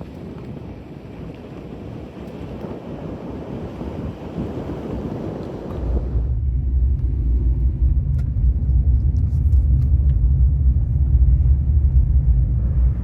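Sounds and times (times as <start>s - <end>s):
loud low rumble: 5.9s - 13.0s.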